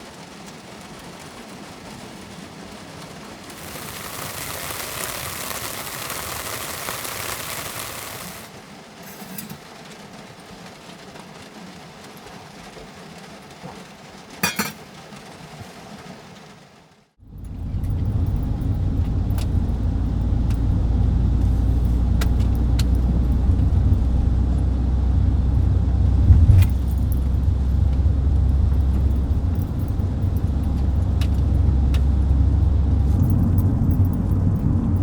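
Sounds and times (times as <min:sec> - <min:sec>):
rain hissing: 0:02.3 - 0:09.9, 0:17.2 - 0:35.0
light clinks: 0:17.3 - 0:35.0
rush of noise: 0:17.3 - 0:35.0.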